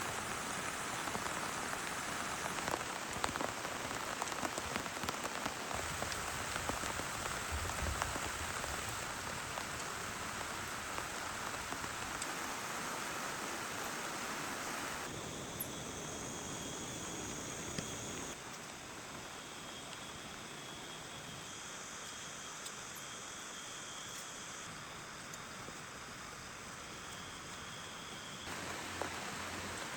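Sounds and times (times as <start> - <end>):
heavy rain falling: 0.0 - 15.1, 28.5 - 29.9
raindrops tapping on a surface: 0.1 - 13.8, 28.5 - 29.9.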